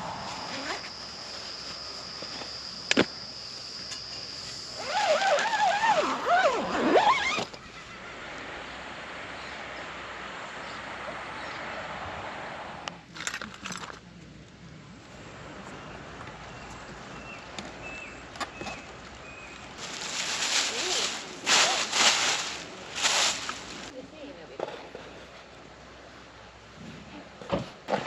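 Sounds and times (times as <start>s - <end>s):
steady high tone: 0.0s - 4.8s
background hiss: 0.0s - 27.8s.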